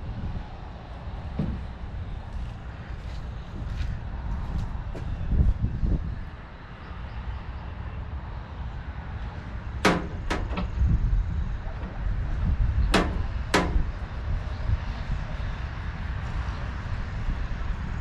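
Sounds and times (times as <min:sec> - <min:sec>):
low steady rumble: 0:09.2 - 0:18.0
sharp knocks: 0:09.8 - 0:10.8, 0:12.9 - 0:14.0.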